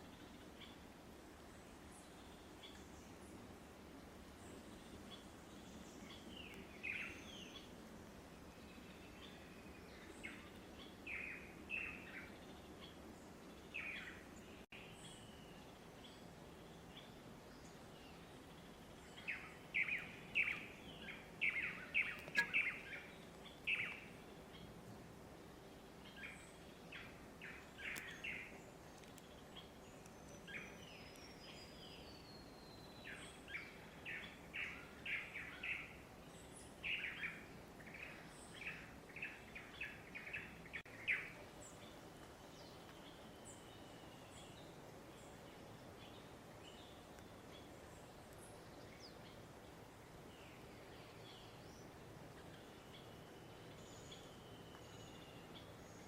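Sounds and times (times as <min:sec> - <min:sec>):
birds singing sharp notes: 0:19.2 - 0:24.8.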